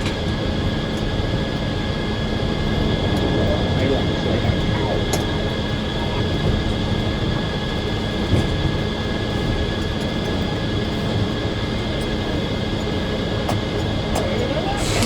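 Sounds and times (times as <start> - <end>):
circular saw machine whine: 14.4 - 15.0.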